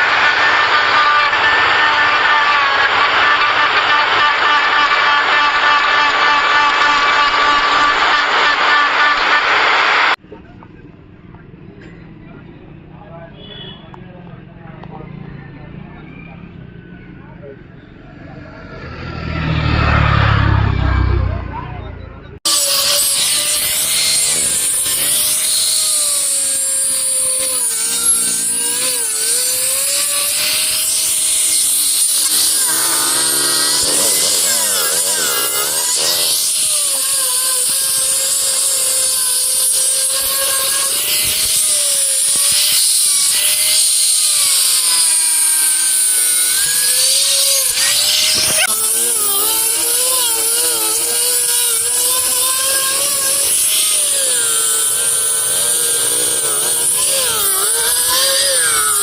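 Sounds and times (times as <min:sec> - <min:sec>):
high hiss of wood cutting: 0:00.0 - 0:10.2, 0:22.5 - 0:59.0
power tool motor whine: 0:00.0 - 0:10.2, 0:22.5 - 0:59.0.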